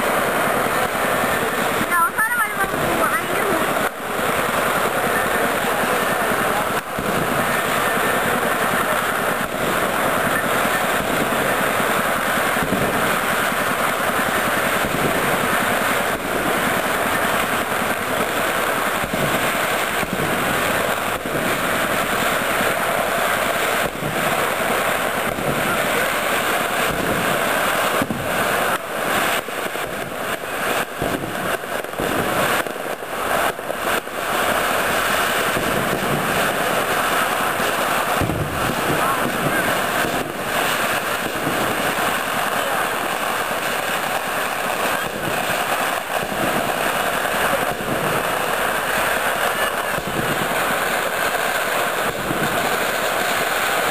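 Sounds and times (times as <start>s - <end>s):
fireworks bangs and crackle: 0.0s - 53.9s.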